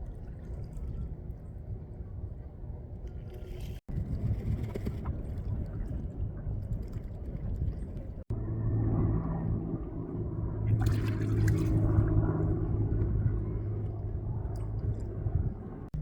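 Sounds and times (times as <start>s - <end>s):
steady low rumble: 0.0s - 16.0s
ducks splashing in water: 10.7s - 12.1s.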